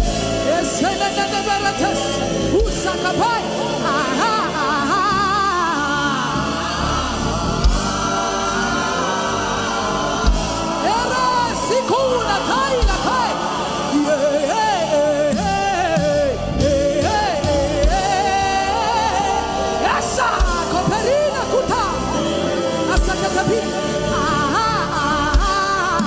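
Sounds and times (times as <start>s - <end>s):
sustained musical backing: 0.0s - 26.0s
low drum beat: 7.4s - 8.8s, 10.1s - 10.9s, 15.4s - 18.3s.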